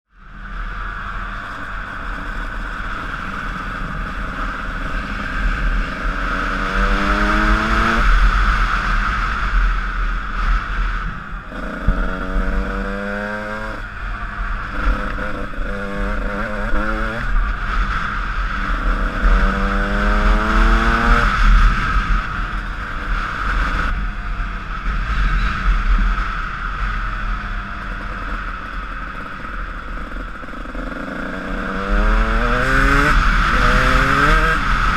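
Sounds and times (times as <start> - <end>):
low rumble: 0.1 - 34.9
motocross bike engine revving: 2.1 - 9.6, 10.6 - 17.4, 18.4 - 24.0, 26.9 - 34.9.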